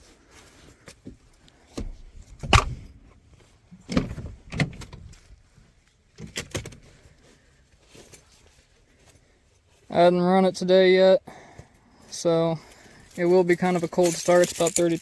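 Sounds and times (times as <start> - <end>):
knocks and clunks: 1.7 - 3.0, 3.8 - 5.2.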